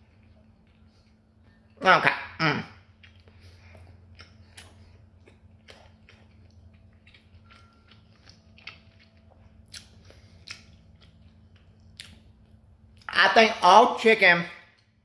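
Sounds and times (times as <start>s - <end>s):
faint low hum: 0.0s - 15.0s
chewing crunchy chicken: 2.8s - 13.1s.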